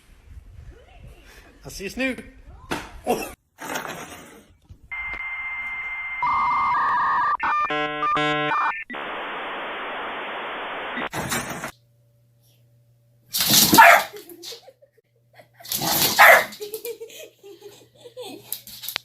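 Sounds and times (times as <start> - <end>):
dial-up modem tones: 4.9 - 11.1
modem hiss: 5.0 - 11.7.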